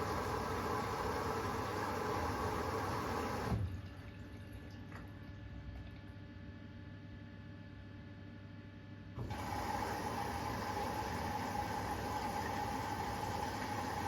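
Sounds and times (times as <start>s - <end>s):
water rushing into washing machine: 0.0s - 6.0s, 9.2s - 14.0s.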